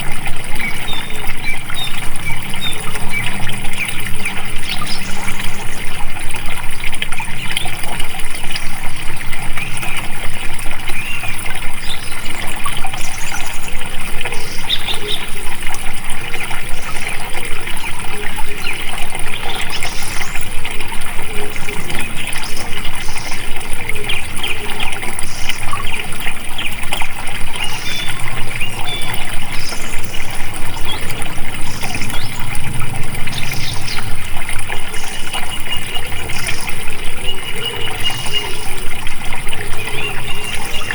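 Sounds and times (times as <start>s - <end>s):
flowing water: 0.0s - 40.9s.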